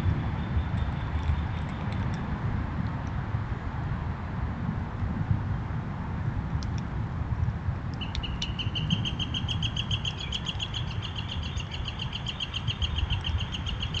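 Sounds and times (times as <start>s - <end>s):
songbird trilling: 8.0s - 14.0s.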